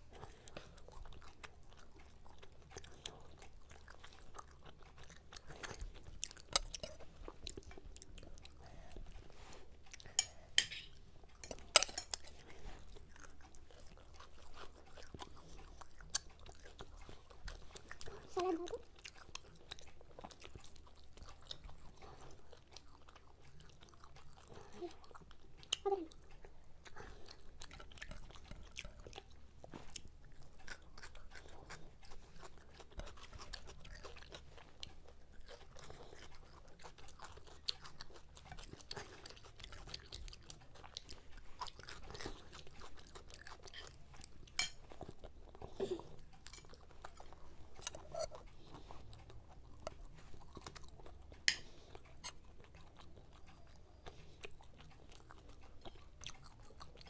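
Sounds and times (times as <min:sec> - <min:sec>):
people chewing fried food: 0:00.0 - 0:57.0.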